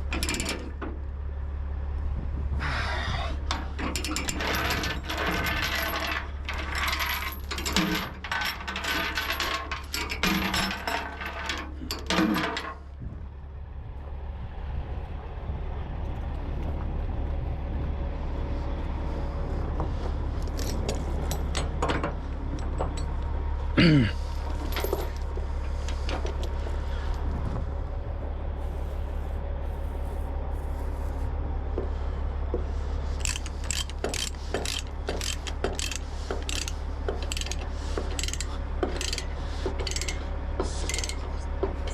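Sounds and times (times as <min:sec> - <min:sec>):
steel chains clinking: 0:00.0 - 0:00.7, 0:03.5 - 0:12.9, 0:20.4 - 0:23.2, 0:23.8 - 0:27.2, 0:33.1 - 0:41.9
steady low rumble: 0:00.0 - 0:12.0, 0:12.7 - 0:41.9.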